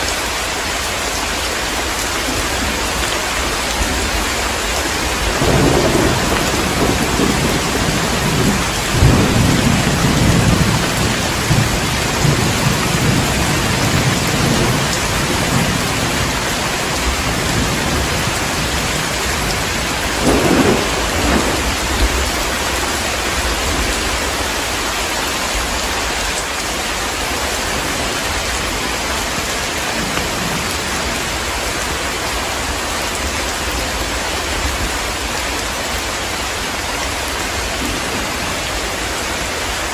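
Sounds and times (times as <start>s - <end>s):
heavy rain falling: 0.0s - 39.9s
thunder rumbling: 2.3s - 24.9s, 27.0s - 33.3s.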